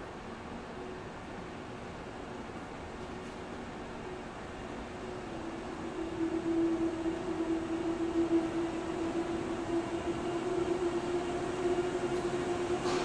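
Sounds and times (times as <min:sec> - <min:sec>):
train electrical hum: 0:00.0 - 0:13.0
rushing noise: 0:03.8 - 0:13.0.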